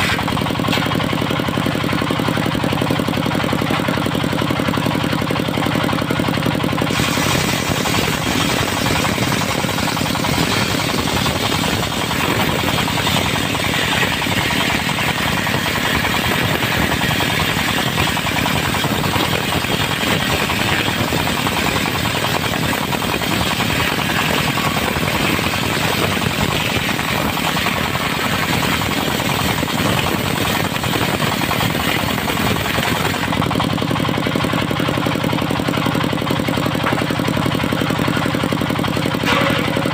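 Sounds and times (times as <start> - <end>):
saw blade cutting wood: 0.0 - 1.1, 6.8 - 33.6, 39.2 - 39.9
diesel engine running: 0.0 - 39.9.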